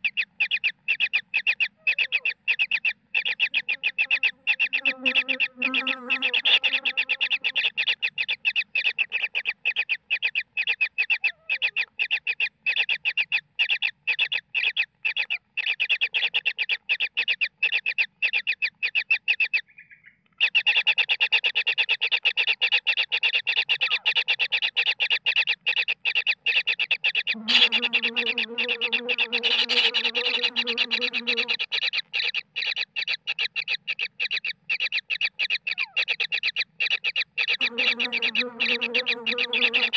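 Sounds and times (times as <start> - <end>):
low drawn-out bird call: 0.0 - 17.8, 25.5 - 39.9
rapid bird calls: 0.0 - 39.9.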